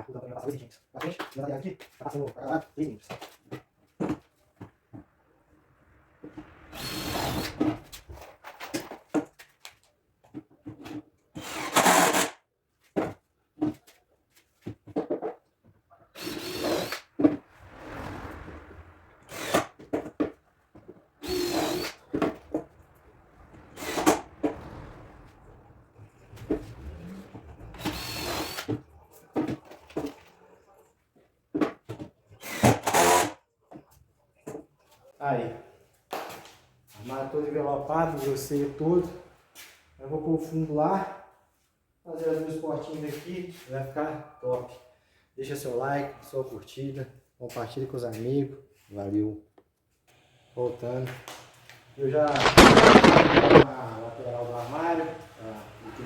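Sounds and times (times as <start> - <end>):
whirring power tool: 11.4 - 12.3, 16.2 - 17.0, 21.2 - 22.0, 27.8 - 28.8
cordless drill driving screws: 11.4 - 12.4, 16.2 - 17.0, 21.2 - 21.9, 28.0 - 28.7, 32.4 - 33.3.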